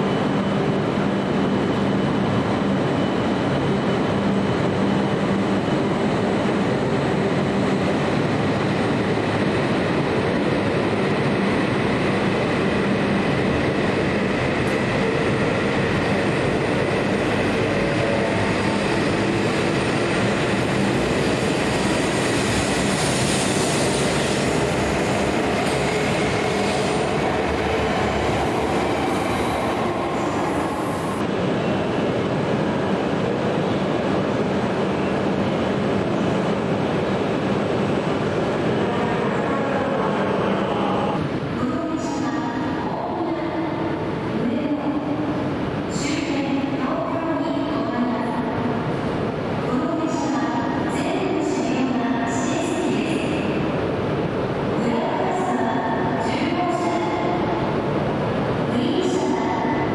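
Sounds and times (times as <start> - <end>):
train rolling past: 0.1 - 44.4.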